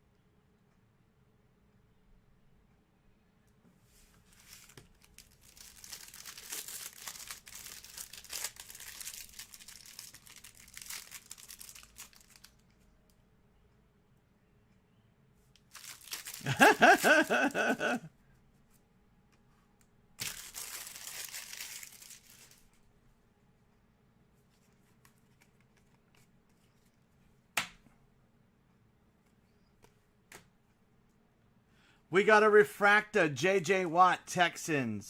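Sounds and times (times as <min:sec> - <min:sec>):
card wrappers crinkling and tearing: 0:04.4 - 0:12.7, 0:15.6 - 0:18.0, 0:20.2 - 0:22.8.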